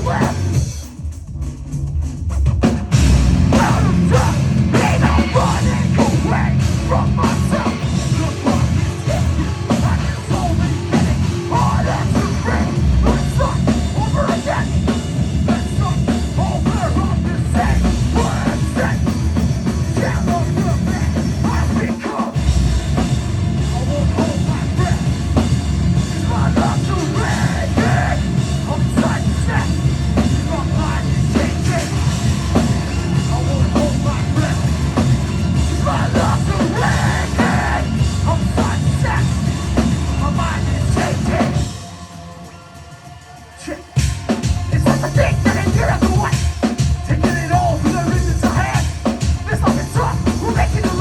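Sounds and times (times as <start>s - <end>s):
distorted guitars: 0.0s - 51.0s
drums: 0.0s - 51.0s
shouted vocals: 3.5s - 19.2s, 26.1s - 34.9s, 35.7s - 41.8s.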